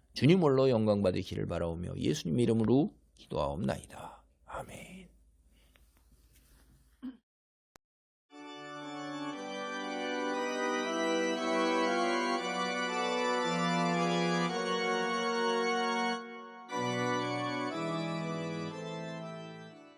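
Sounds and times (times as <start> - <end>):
organ playing sustained chords: 8.3 - 19.9.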